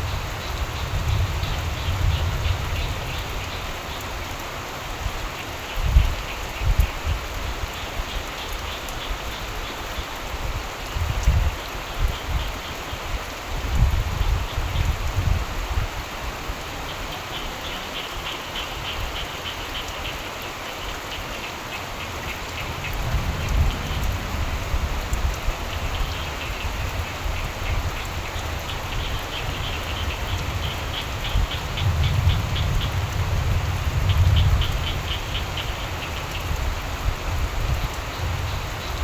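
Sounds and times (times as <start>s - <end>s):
steady rain: 0.0s - 39.0s
frogs trilling: 16.8s - 36.8s
distant thunder rumble: 22.0s - 36.4s.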